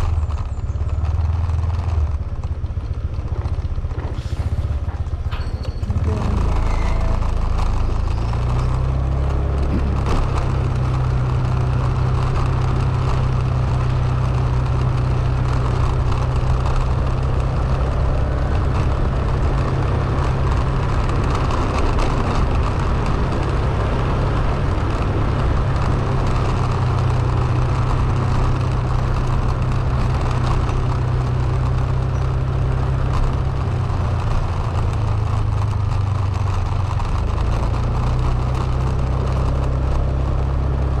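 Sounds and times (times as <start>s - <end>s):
vehicle engine humming: 0.0s - 41.0s.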